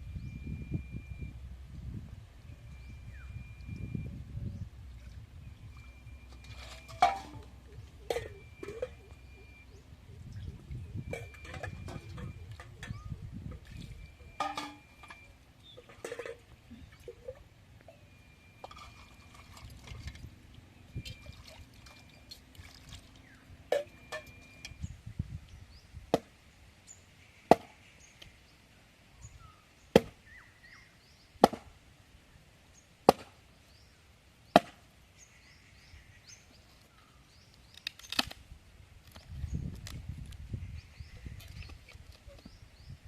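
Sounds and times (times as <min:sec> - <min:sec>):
sharp chopping strikes: 0:27.5 - 0:27.8, 0:30.0 - 0:30.2, 0:31.4 - 0:31.7, 0:33.0 - 0:33.4, 0:34.6 - 0:34.8.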